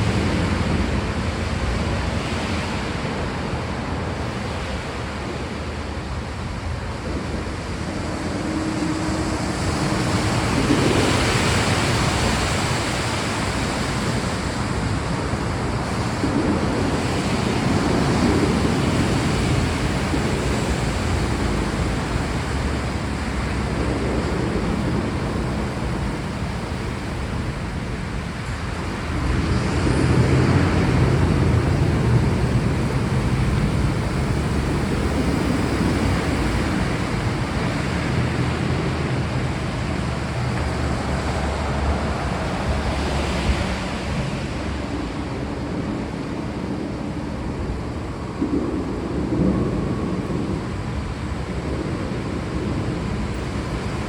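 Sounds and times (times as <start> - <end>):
steady rainfall: 0.0 - 54.0
low rumbling: 5.8 - 13.6, 14.6 - 45.9.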